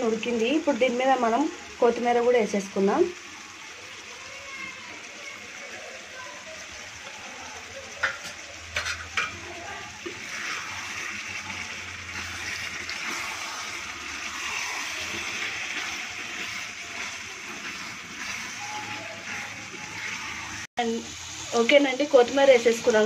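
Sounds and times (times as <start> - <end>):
curry sizzling in pan: 0.0 - 23.0
spoon stirring: 10.0 - 20.7.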